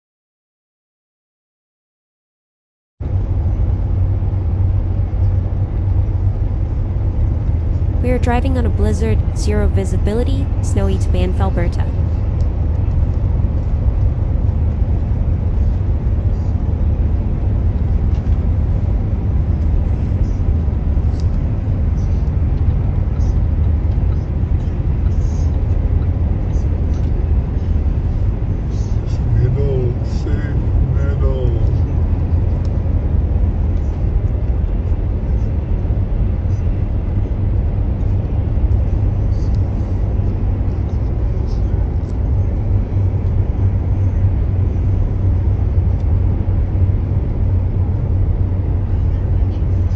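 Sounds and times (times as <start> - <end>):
car cabin road noise: 12.0 - 49.9.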